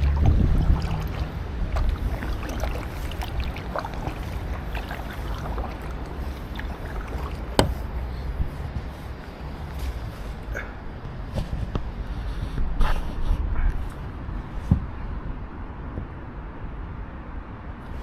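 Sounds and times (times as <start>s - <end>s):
paddle splashing water: 0.0s - 10.2s
wind on microphone: 0.0s - 10.4s.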